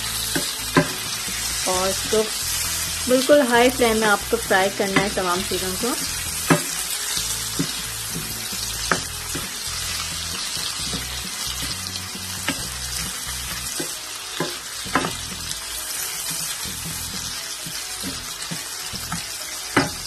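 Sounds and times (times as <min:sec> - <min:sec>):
vegetables sizzling in a pan: 0:00.0 - 0:20.0
wooden spatula knocking on pan: 0:00.3 - 0:01.0, 0:04.9 - 0:05.2, 0:06.5 - 0:06.8, 0:07.5 - 0:09.7, 0:13.7 - 0:15.2, 0:17.6 - 0:20.0.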